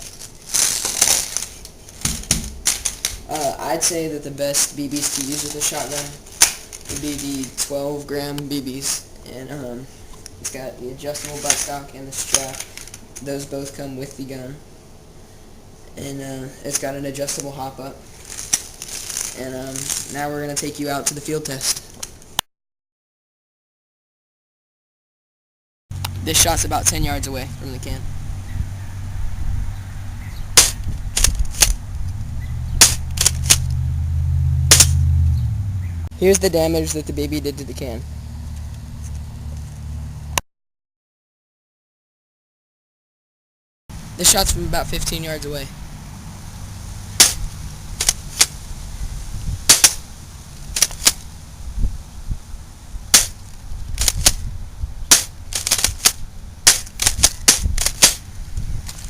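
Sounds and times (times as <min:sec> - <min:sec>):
low steady hum: 0:00.0 - 0:22.4, 0:25.9 - 0:40.4, 0:44.0 - 0:59.0.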